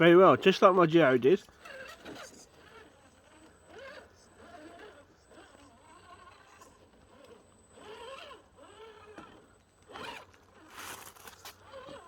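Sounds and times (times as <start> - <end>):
toy car motor whining: 0.0 - 12.0
short scraping noises: 9.9 - 12.0.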